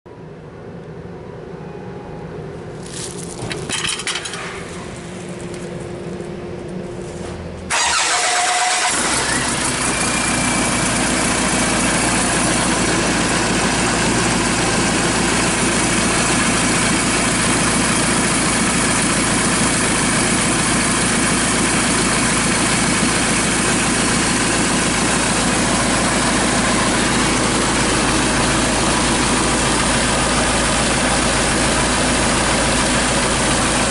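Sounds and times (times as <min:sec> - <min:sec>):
diesel engine starting and idling: 0:01.4 - 0:33.9
clicking and rattling: 0:03.2 - 0:04.7.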